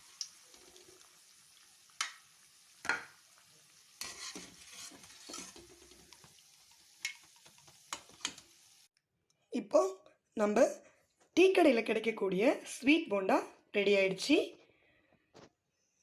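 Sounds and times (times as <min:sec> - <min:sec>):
oil sizzling in a pan: 0:00.0 - 0:09.0.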